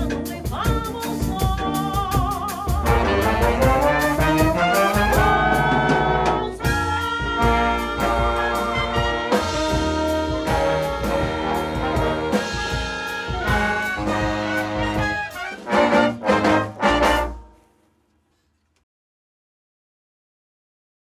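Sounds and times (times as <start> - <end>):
jazz band playing samba: 0.0 - 17.6
accented ensemble hits: 2.8 - 6.8, 7.4 - 17.6.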